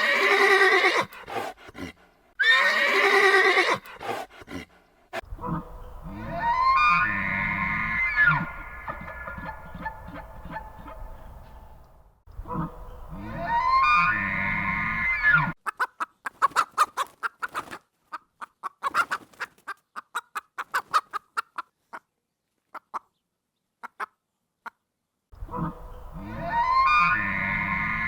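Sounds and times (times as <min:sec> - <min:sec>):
animal clucking calls: 0:05.2 - 0:07.4, 0:08.2 - 0:11.8, 0:12.4 - 0:14.3, 0:15.4 - 0:22.1, 0:25.4 - 0:28.0.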